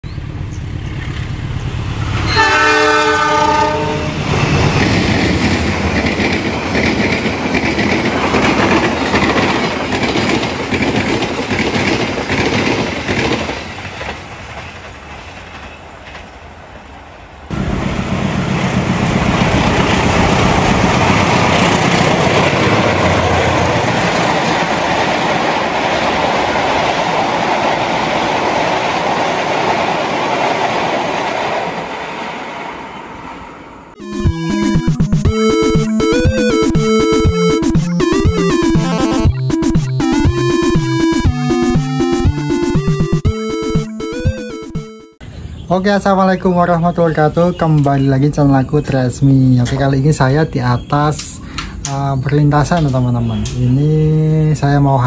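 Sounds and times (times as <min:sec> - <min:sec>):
passenger train rumbling past: 0:00.1 - 0:34.0
locomotive horn blast: 0:02.2 - 0:04.2.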